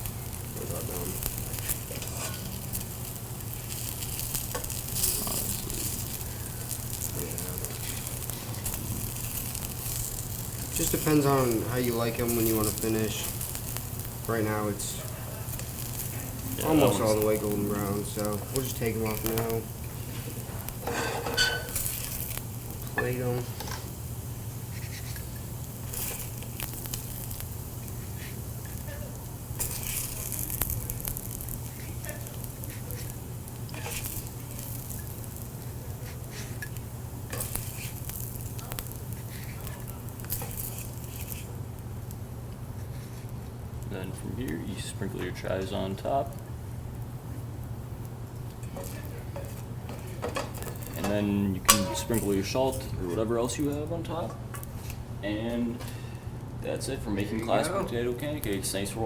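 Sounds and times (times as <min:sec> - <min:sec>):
pancakes sizzling in a pan: 0:00.0 - 0:59.0
steady low hum: 0:00.0 - 0:59.0
utensil clicking and scraping a pan: 0:01.2 - 0:02.8, 0:24.7 - 0:28.8, 0:29.6 - 0:35.4, 0:36.0 - 0:41.5, 0:48.6 - 0:52.8.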